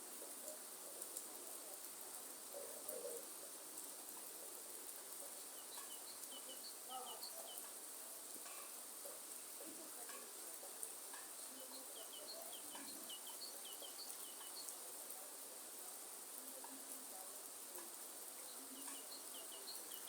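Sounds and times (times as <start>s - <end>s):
steady rain hiss: 0.0s - 20.0s
bird chirping: 5.4s - 7.7s, 11.3s - 14.8s, 18.4s - 20.0s.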